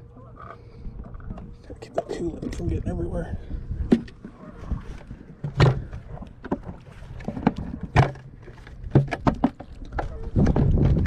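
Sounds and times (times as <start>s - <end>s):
bucket knocks and clunks: 3.9s - 4.2s, 5.4s - 11.0s.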